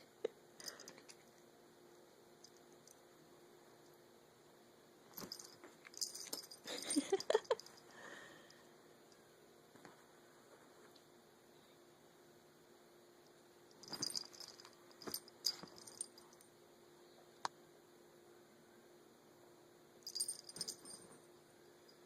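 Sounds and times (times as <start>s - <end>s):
metal chain jingling: 5.2s - 7.8s, 13.8s - 16.3s, 20.1s - 21.2s.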